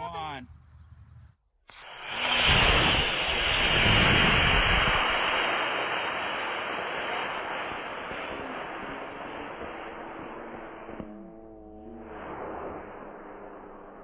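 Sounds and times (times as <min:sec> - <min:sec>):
model rocket motor hissing: 0:01.7 - 0:11.2.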